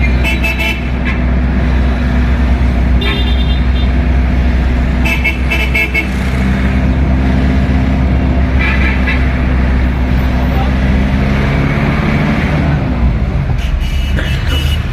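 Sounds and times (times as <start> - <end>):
vehicle horns beeping: 0.0 - 1.3, 3.0 - 4.0, 5.0 - 6.2, 8.6 - 9.4, 13.6 - 14.9
traffic engine rumble: 0.0 - 14.9.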